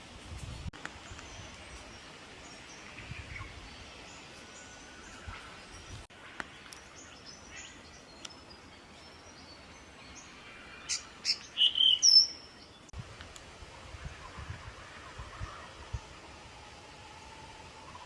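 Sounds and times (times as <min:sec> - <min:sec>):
small birds chirping: 0:00.3 - 0:13.0.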